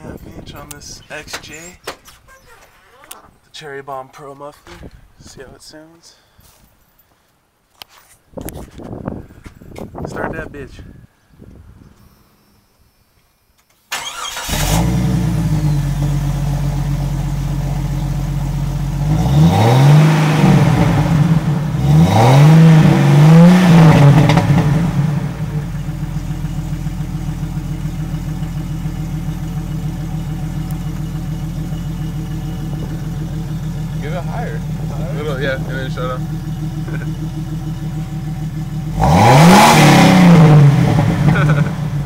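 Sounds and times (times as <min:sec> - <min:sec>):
car engine starting: 0:13.9 - 0:42.0
car engine idling and revving: 0:14.2 - 0:42.0.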